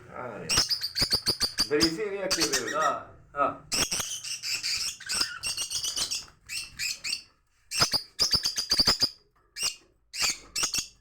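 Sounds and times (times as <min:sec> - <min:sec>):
small songbirds chirping: 0:00.4 - 0:11.0.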